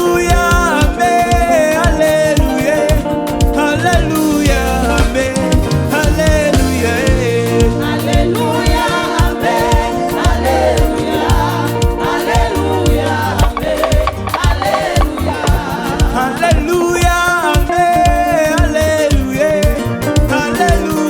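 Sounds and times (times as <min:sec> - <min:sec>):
keyboard chords: 0:00.0 - 0:18.4
steady drum beat: 0:00.0 - 0:20.3
voices singing gospel: 0:00.0 - 0:21.0
bass line: 0:03.8 - 0:08.6, 0:12.6 - 0:16.2.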